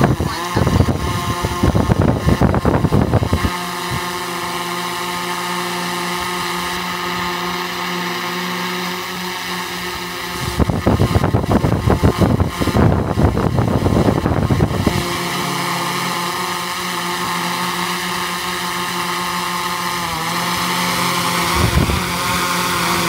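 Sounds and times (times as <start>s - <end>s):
wind buffeting microphone: 0.0s - 4.2s, 10.3s - 15.3s, 21.4s - 23.0s
drone propellers humming: 0.0s - 23.0s.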